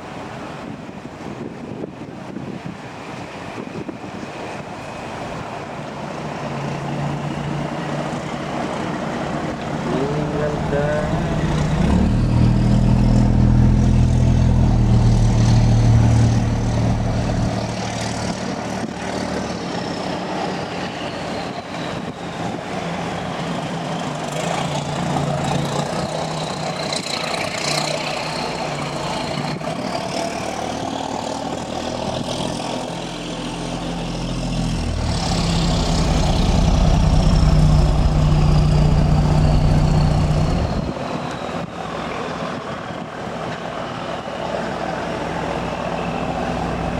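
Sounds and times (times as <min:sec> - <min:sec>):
heavy engine running: 0:06.5 - 0:18.4, 0:31.5 - 0:41.0, 0:45.4 - 0:46.9.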